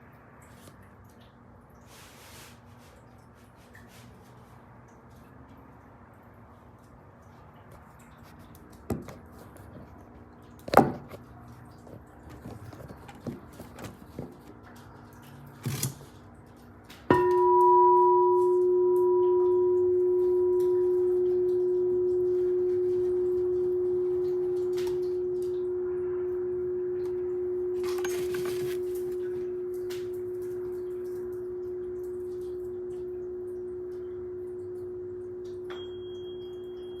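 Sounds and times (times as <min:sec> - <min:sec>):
glass singing bowl ringing: 0:17.1 - 0:28.2, 0:35.4 - 0:37.0.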